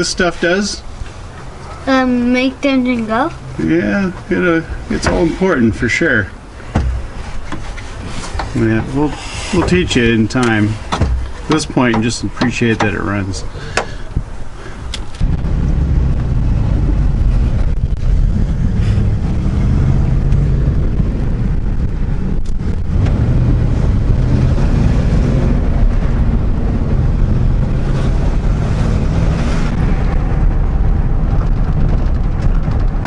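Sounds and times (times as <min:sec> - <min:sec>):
road and wind noise: 0:00.0 - 0:33.0
truck engine running: 0:09.7 - 0:33.0.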